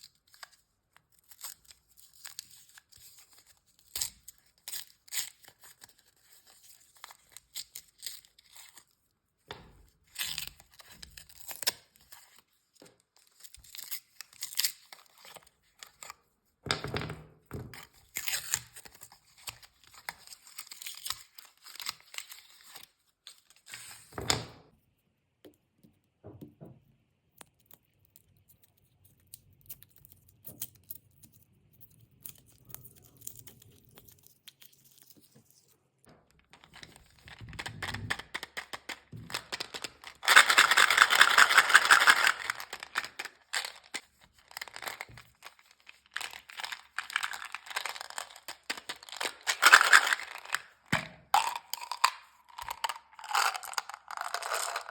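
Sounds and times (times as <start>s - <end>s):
plastic wrappers crinkling and tearing: 0.0s - 9.0s, 17.9s - 23.9s, 36.6s - 54.9s.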